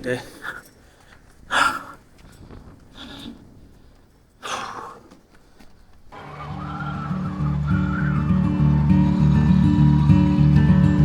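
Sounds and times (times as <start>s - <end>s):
person breathing hard: 0.4s - 5.7s
background music: 6.2s - 11.0s.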